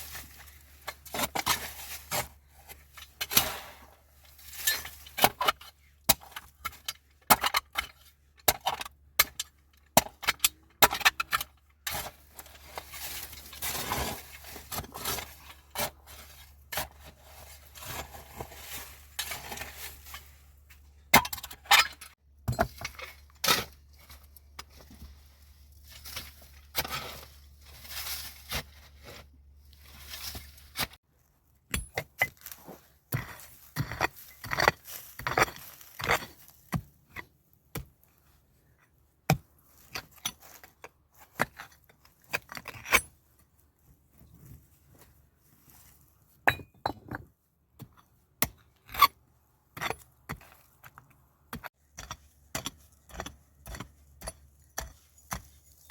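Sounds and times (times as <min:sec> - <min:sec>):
hard objects clinking and scraping: 0:31.8 - 0:36.4.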